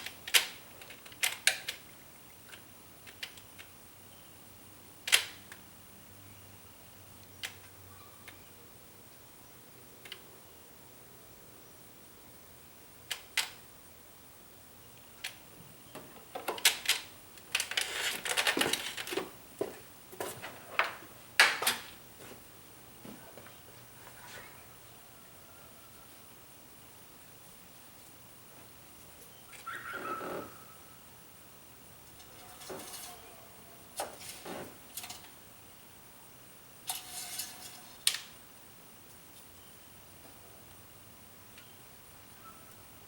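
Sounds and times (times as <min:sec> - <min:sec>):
hard parts clicking: 0:15.2 - 0:19.4.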